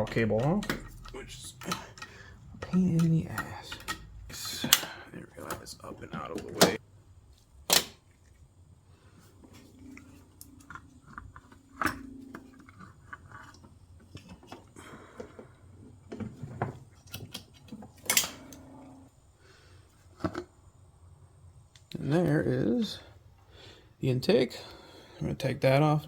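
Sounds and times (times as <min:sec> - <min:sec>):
metal tools clinking and knocking: 0:00.0 - 0:06.8.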